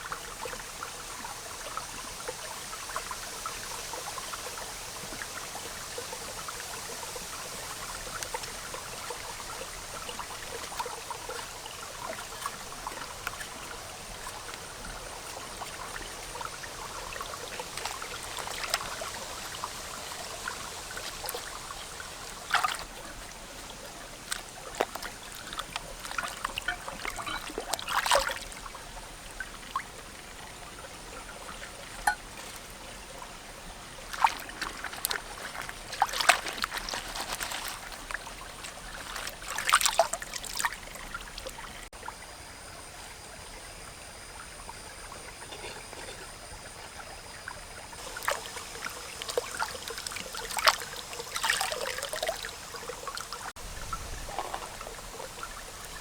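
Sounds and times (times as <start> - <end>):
water trickling and pouring: 0.0 - 56.0
short splashes: 9.5 - 28.5, 34.1 - 41.7, 48.0 - 53.5.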